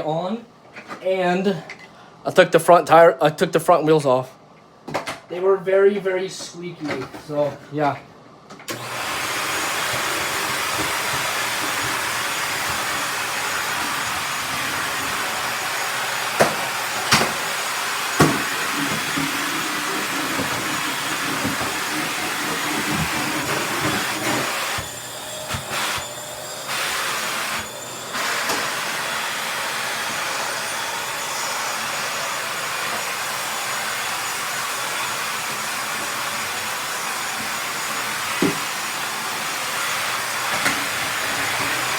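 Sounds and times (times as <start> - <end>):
stick vacuum running: 8.7 - 41.9.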